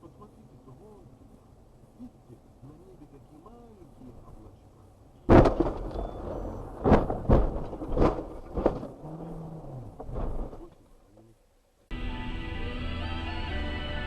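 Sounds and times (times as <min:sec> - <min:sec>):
bangs and knocks: 0:05.3 - 0:09.3, 0:09.9 - 0:10.7
car crash impact: 0:05.3 - 0:10.8.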